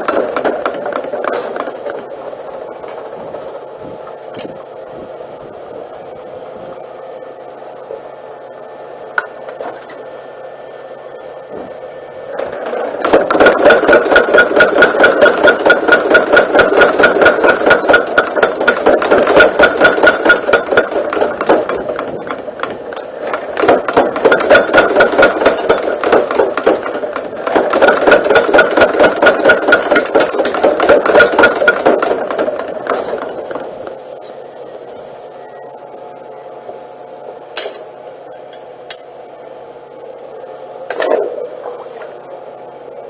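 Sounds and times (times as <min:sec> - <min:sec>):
power hammer pounding: 0:00.0 - 0:02.1, 0:12.4 - 0:33.9.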